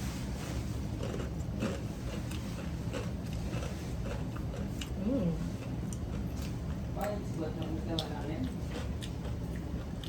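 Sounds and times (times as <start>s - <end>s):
crunching and chewing: 0.5s - 10.0s.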